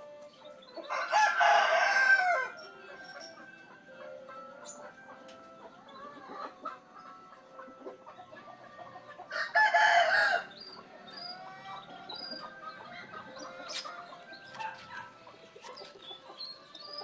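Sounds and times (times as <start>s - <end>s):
faint bird chirps and clucks: 0.0s - 17.0s
rooster crowing: 0.9s - 2.6s, 9.3s - 10.6s.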